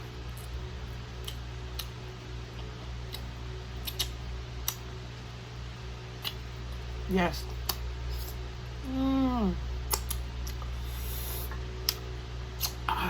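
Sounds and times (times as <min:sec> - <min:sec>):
low hum: 0:00.0 - 0:13.0
chewing and lip-smacking: 0:01.2 - 0:04.9, 0:06.2 - 0:08.4, 0:09.9 - 0:12.9.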